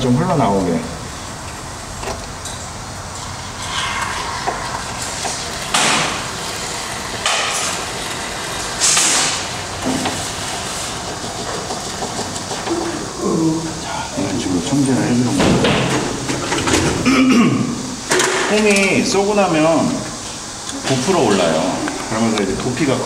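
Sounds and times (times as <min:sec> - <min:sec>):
foam gun spraying: 0:04.5 - 0:12.1.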